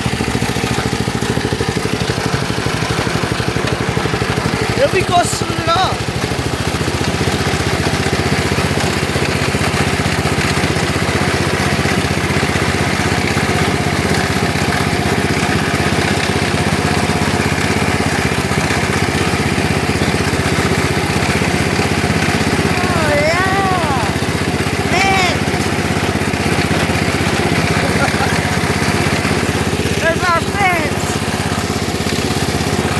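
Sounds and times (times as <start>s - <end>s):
lawn tractor engine running: 0.0s - 32.9s.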